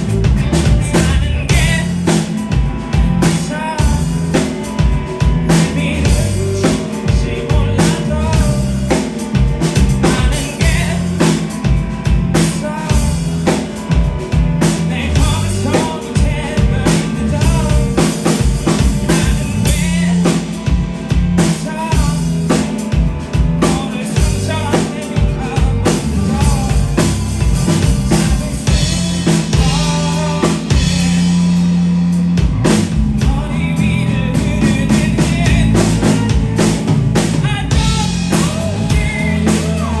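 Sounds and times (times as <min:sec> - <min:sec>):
drum-kit beat: 0:00.0 - 0:40.0
live band playing: 0:00.0 - 0:40.0
person singing: 0:00.0 - 0:40.0.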